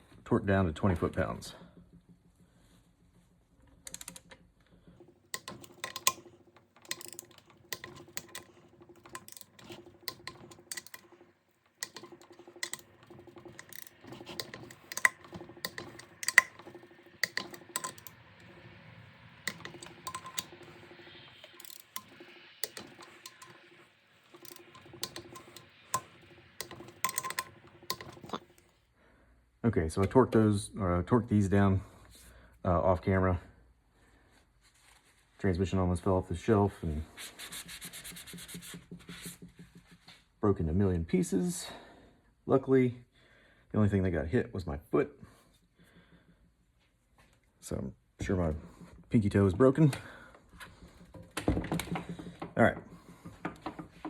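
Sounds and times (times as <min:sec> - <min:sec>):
tools clinking against metal: 0:05.0 - 0:18.8, 0:19.4 - 0:28.6.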